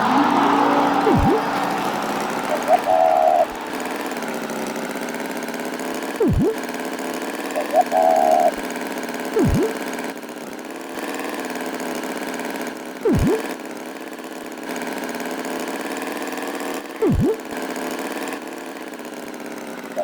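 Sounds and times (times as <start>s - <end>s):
swooping sound effect: 0.0s - 3.6s, 6.2s - 6.6s, 9.4s - 9.8s, 13.1s - 13.5s, 17.0s - 17.4s
engine hum: 0.0s - 11.4s, 13.0s - 13.6s, 17.0s - 17.7s.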